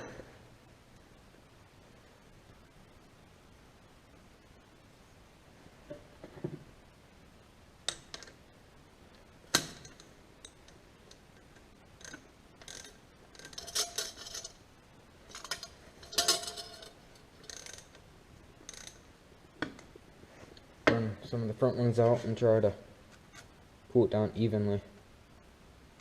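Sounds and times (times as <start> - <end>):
metal hand tools clinking: 12.0 - 14.6, 15.3 - 17.8.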